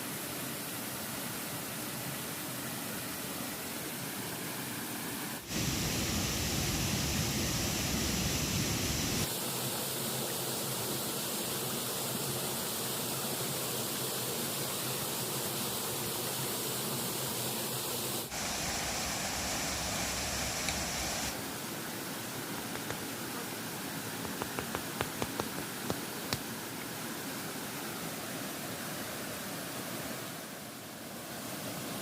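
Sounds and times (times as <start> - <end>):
river flowing: 18.3 - 32.0.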